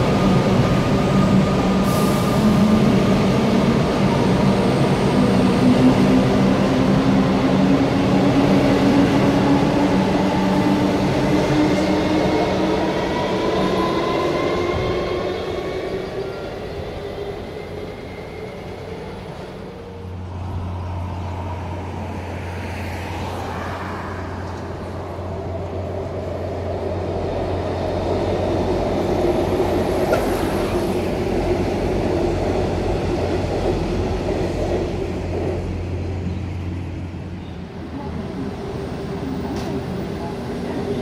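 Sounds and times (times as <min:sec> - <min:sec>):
electric train on viaduct: 0:00.0 - 0:41.0.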